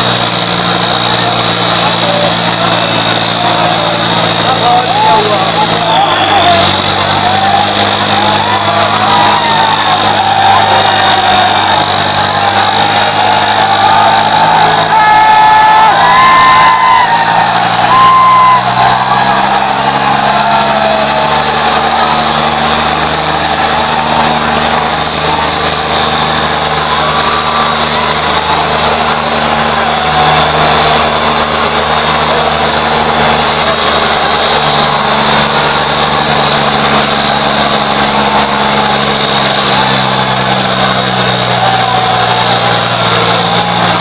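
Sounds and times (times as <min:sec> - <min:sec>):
high steady whine: 0:00.0 - 0:44.0
tractor diesel engines under load: 0:00.0 - 0:44.0.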